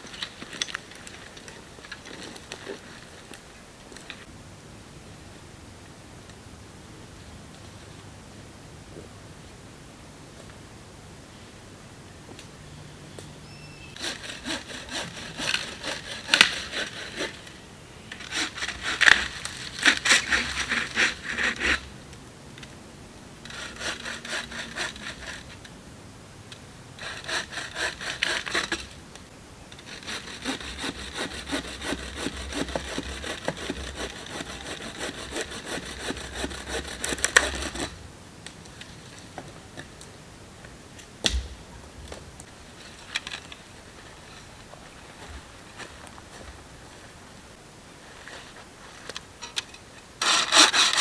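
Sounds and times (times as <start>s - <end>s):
hand saw cutting wood: 14.0s - 17.5s, 18.1s - 21.9s, 23.5s - 25.6s, 27.0s - 29.0s, 29.8s - 38.0s, 50.2s - 51.0s.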